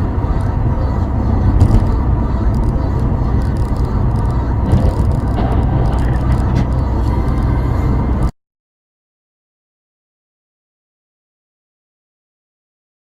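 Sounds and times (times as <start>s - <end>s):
car engine and road rumble: 0.0s - 8.3s.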